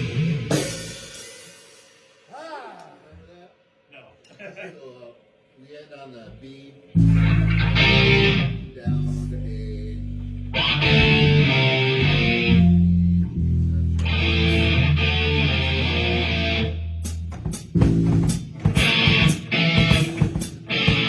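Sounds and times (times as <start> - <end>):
electric guitar chords: 0.0 - 1.1, 7.0 - 21.0
bass guitar: 0.0 - 1.3, 6.9 - 21.0
drum hits: 17.0 - 21.0.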